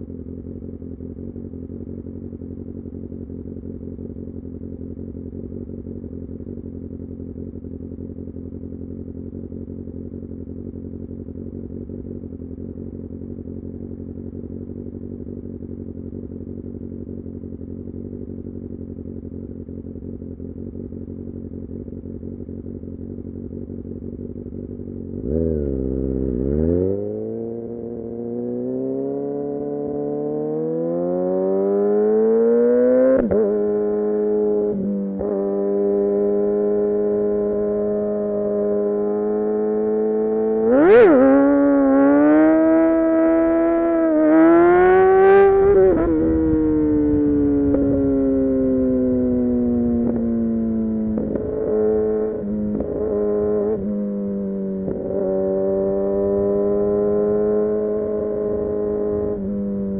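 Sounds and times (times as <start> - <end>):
motorcycle engine idling: 0.0 - 26.6, 33.0 - 59.9
engine revving and accelerating: 25.2 - 59.9.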